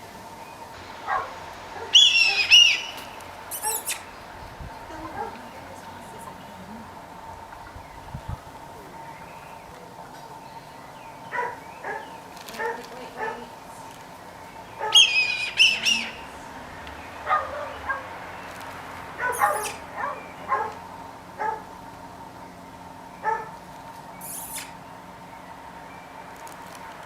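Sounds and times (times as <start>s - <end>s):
high wavering animal call: 1.0s - 13.6s, 14.8s - 16.6s, 19.2s - 19.9s, 24.2s - 24.8s
short animal calls: 1.8s - 4.2s, 19.2s - 19.8s, 24.2s - 24.8s.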